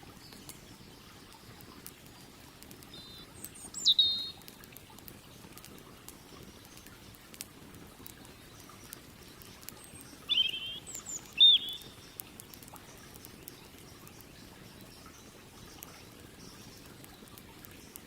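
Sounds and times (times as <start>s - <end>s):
campfire crackles: 0.0s - 18.0s
bird warbling call: 3.0s - 4.4s, 10.3s - 12.1s.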